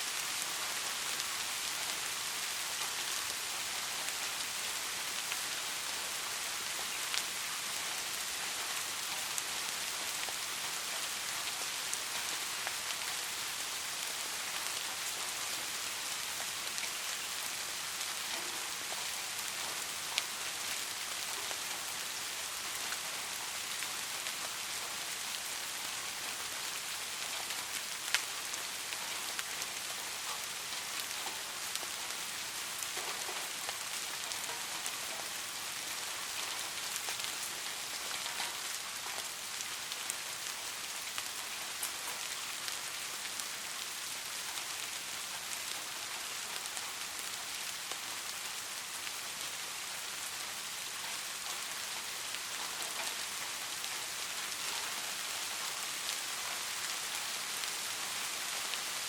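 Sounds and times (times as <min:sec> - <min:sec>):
rain hissing: 0:00.0 - 0:59.0.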